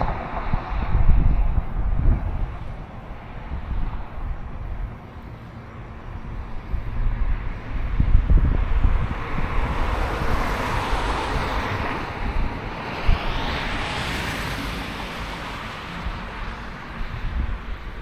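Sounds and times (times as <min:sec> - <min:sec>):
wind rumble on microphone: 0:00.0 - 0:18.0
vehicle passing by: 0:06.7 - 0:17.6.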